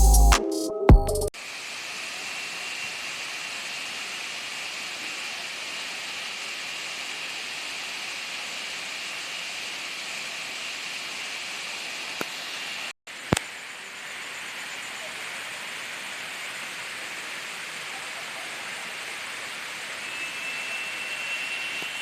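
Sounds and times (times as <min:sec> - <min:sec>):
waterfall rushing: 0:14.0 - 0:22.0.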